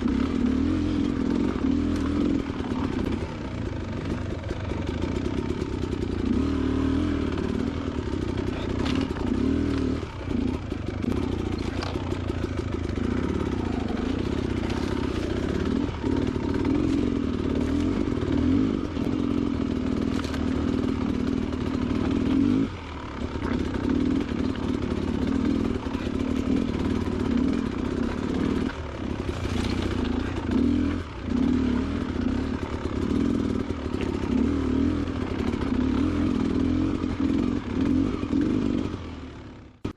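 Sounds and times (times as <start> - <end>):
dirt bike engine revving: 0.0 - 39.9
clatter over loose rock: 1.1 - 6.2, 7.3 - 31.4.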